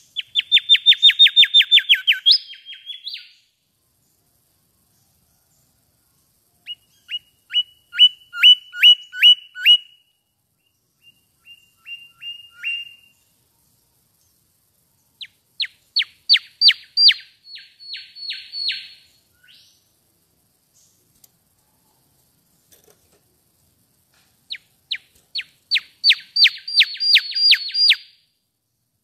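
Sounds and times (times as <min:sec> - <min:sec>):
bird whistling clear notes: 0:11.4 - 0:13.1, 0:25.7 - 0:28.0.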